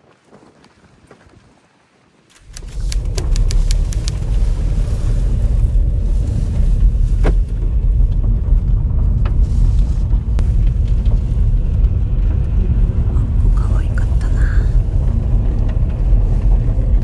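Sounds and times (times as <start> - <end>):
faint ticks: 2.3 - 4.3
clicks: 2.3 - 4.4
car road rumble: 2.4 - 17.0.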